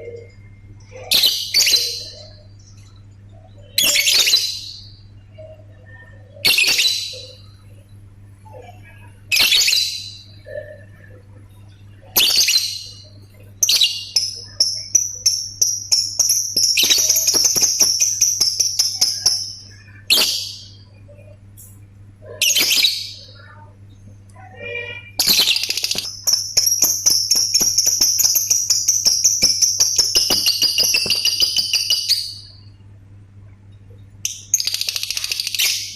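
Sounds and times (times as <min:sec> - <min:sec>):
bird rapid ticking clicks: 0:14.6 - 0:19.6, 0:25.6 - 0:32.1.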